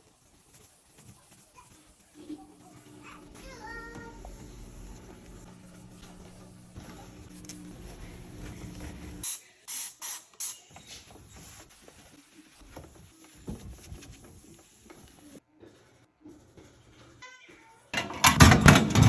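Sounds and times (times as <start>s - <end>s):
steady hum: 2.2s - 9.2s
spray bottle squirts: 9.2s - 11.6s
rubbing and knocks of wiping: 10.9s - 16.9s.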